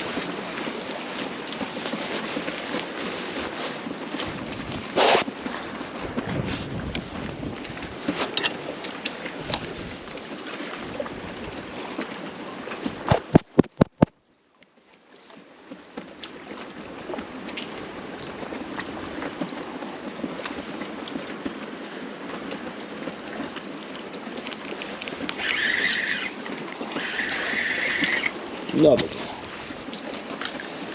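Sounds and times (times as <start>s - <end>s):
water lapping: 0.0s - 13.9s, 14.8s - 30.9s
wind on microphone: 3.8s - 11.8s.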